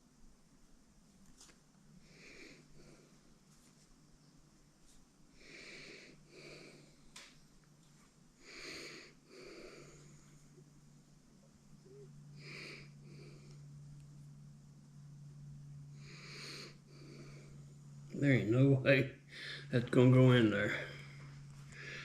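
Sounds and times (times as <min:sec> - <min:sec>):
faint steady hum: 0:00.0 - 0:22.0
man breathing heavily: 0:05.3 - 0:07.1, 0:08.4 - 0:10.6, 0:12.4 - 0:13.8, 0:15.9 - 0:17.8, 0:19.2 - 0:19.7, 0:20.7 - 0:22.0.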